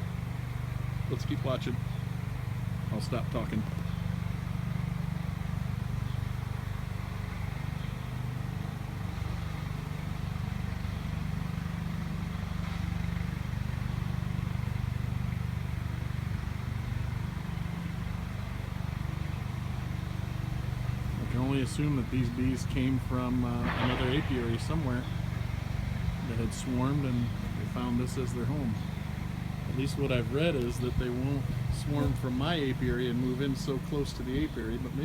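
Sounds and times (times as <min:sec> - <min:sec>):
bees buzzing: 0:13.4 - 0:35.0.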